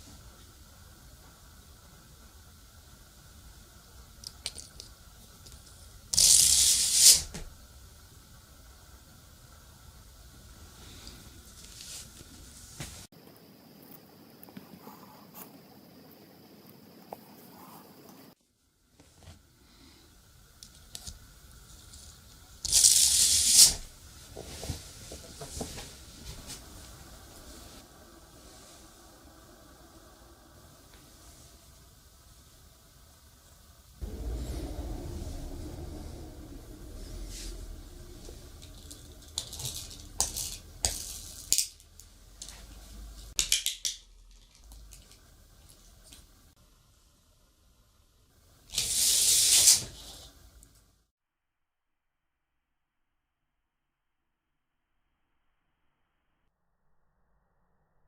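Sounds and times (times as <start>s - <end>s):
loud rasping tearing noise: 6.1s - 7.3s, 22.6s - 23.8s
clicks of small parts handled: 43.4s - 45.2s.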